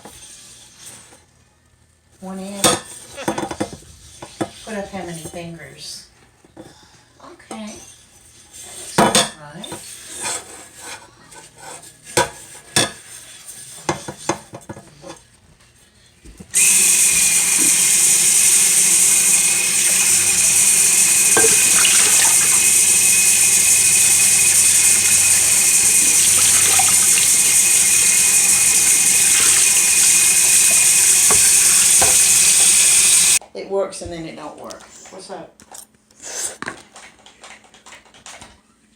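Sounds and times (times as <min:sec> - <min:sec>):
tap water running into sink: 0:16.6 - 0:33.4.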